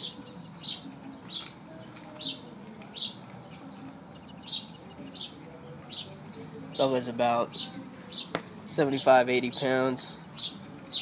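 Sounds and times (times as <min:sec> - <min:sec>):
small bird chirping: 0:00.0 - 0:08.4, 0:09.5 - 0:11.0.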